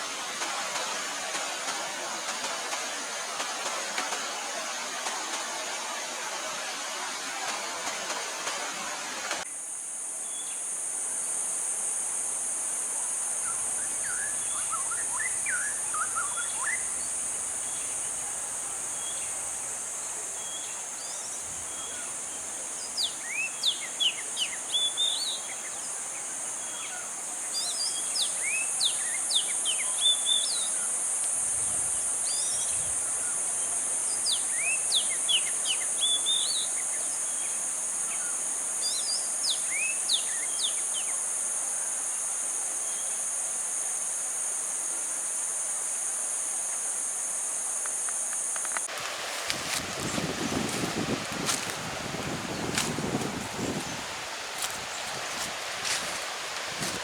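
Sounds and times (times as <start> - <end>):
insects droning: 0.0 - 57.0
birds chirping: 49.2 - 57.0.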